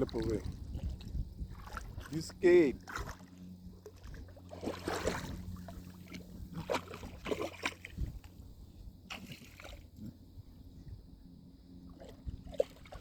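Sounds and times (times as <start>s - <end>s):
steady low hum: 0.0s - 13.0s
dog splashing through water: 2.8s - 8.0s, 11.9s - 13.0s.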